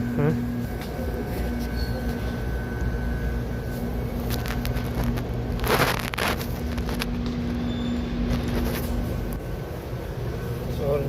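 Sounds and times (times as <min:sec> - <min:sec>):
air blower humming: 0:00.0 - 0:11.0.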